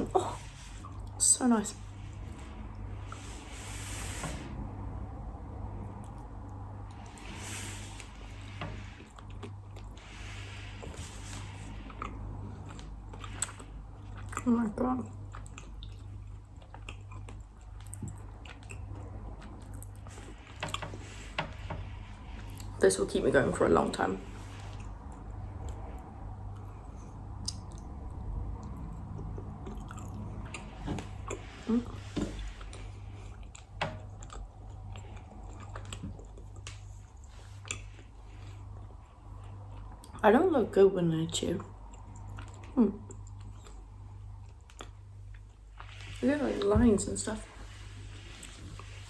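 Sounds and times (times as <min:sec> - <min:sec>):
steady low hum: 0:00.0 - 0:49.0
person chewing fudge: 0:05.8 - 0:22.8, 0:24.3 - 0:40.2, 0:41.7 - 0:46.2.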